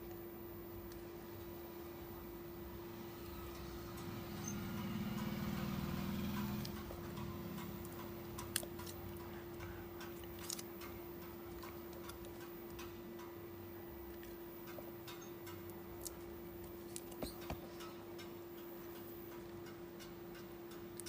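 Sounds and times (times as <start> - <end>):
steady electrical hum: 0.0 - 21.0
small tools clicking and tapping: 6.3 - 13.4, 14.1 - 21.0.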